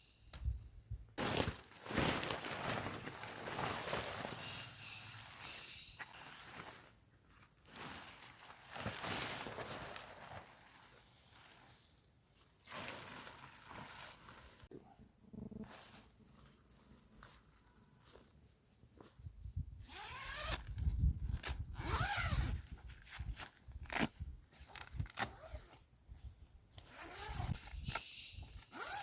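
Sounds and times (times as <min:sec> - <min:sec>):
insect chirping: 0:00.0 - 0:29.0
handling rustles and knocks: 0:01.2 - 0:04.8, 0:07.5 - 0:10.7.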